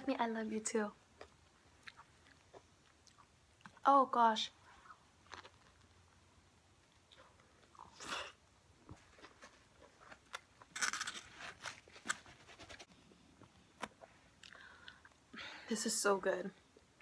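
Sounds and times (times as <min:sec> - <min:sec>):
chewing spring roll: 0:01.2 - 0:03.8, 0:04.7 - 0:06.0.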